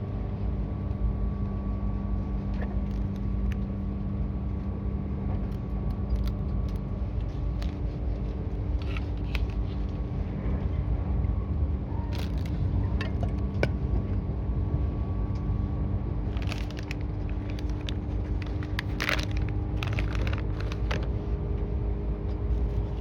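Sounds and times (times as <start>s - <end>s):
electric train rumble and motor hum: 0.0s - 23.0s.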